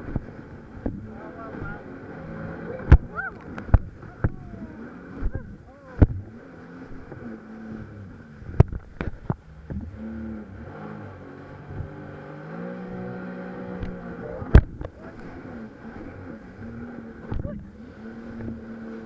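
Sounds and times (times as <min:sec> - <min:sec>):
jet ski engine revving: 0:00.0 - 0:19.0
sharp thumps: 0:05.2 - 0:06.3.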